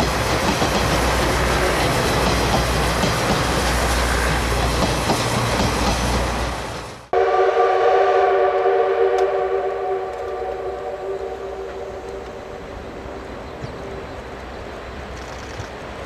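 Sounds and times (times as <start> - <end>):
steam train rumbling: 0.0 - 16.0
steam locomotive whistle blast: 7.1 - 13.6.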